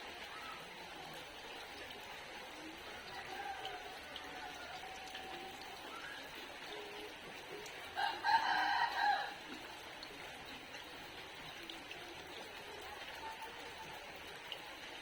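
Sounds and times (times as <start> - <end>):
rain falling: 0.0 - 15.0
rooster crowing: 3.1 - 5.5, 8.0 - 9.4.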